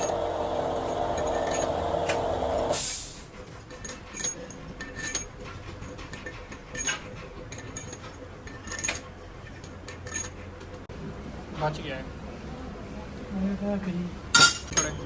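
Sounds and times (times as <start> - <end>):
metal parts clinking: 0.0 - 2.4, 3.6 - 10.8, 14.3 - 15.0
steady low hum: 0.0 - 14.3.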